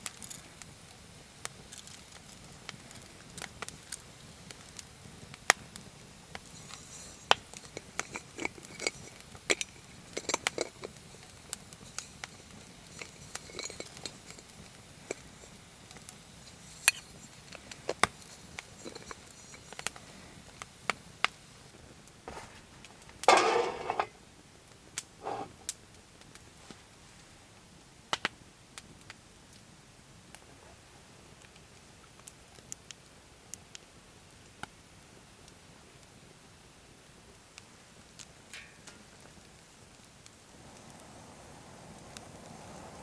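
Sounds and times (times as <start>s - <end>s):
metal cookware clinking: 23.2s - 24.2s.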